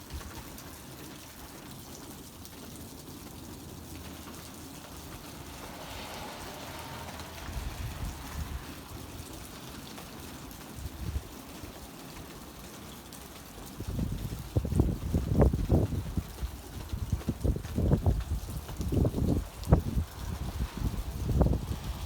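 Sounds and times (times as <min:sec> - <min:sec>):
rain falling: 0:00.0 - 0:22.0
low rumbles: 0:04.8 - 0:09.2.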